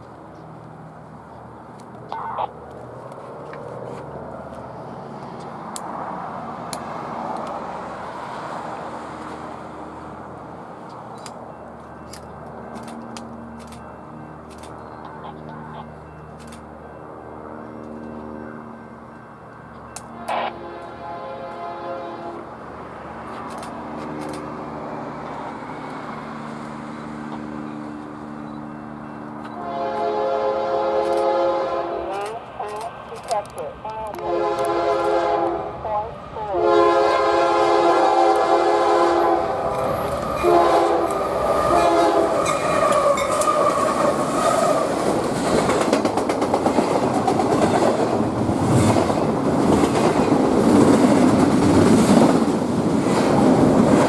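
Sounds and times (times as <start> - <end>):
train rolling past: 0.0 - 54.0
locomotive horn: 15.0 - 16.0, 20.0 - 22.6, 29.5 - 44.9.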